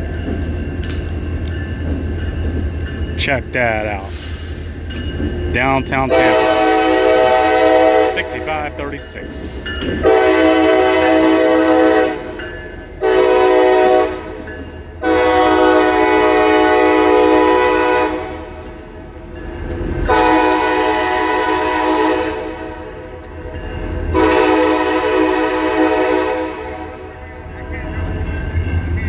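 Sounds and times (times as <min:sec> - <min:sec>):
locomotive air horn blasts: 0:06.1 - 0:08.4, 0:10.0 - 0:12.4, 0:13.0 - 0:14.4, 0:15.0 - 0:18.5, 0:20.1 - 0:22.9, 0:24.1 - 0:27.3.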